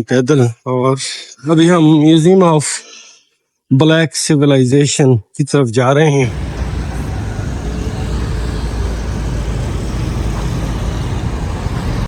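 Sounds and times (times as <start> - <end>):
road traffic rumble: 6.2 - 12.0.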